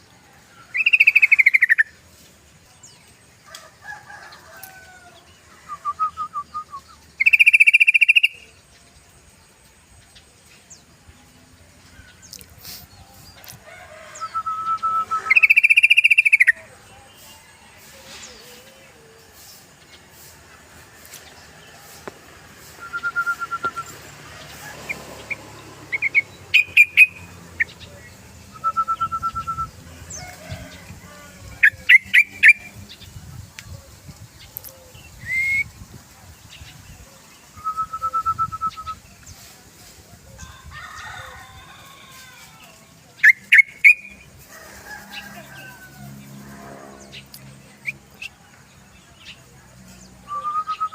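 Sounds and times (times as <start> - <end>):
bulbul singing trills and notes: 5.2 - 13.4, 22.6 - 39.4.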